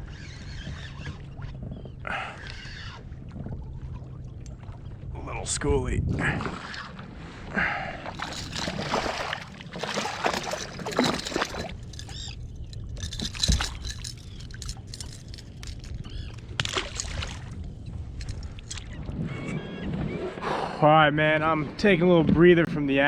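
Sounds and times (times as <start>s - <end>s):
water sloshing and splashing: 0.0s - 5.4s, 6.2s - 19.2s.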